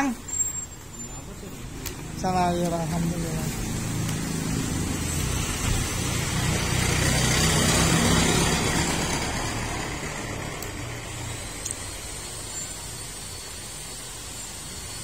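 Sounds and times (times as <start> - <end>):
vehicle passing by: 1.6 - 11.8.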